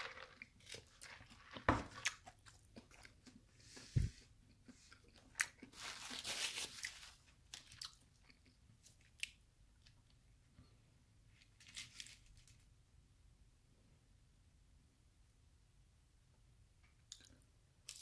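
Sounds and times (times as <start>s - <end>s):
chewing crisp fried food: 0.0s - 10.2s.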